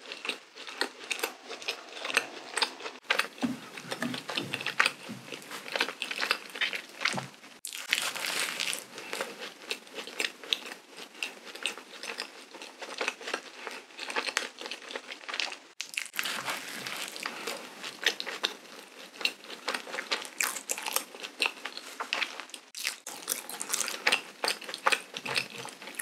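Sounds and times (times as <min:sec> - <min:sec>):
chewing donut: 0:00.0 - 0:26.0.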